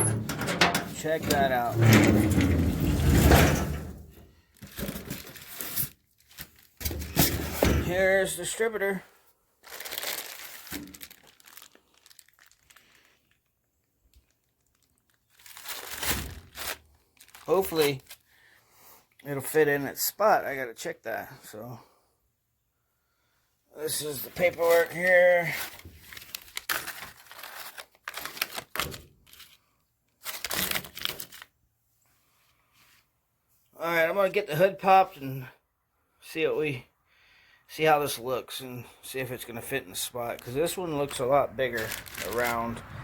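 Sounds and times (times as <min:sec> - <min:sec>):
packaging crinkling and rustling: 0:04.4 - 0:07.2, 0:09.6 - 0:18.2, 0:24.2 - 0:31.6, 0:40.0 - 0:43.0.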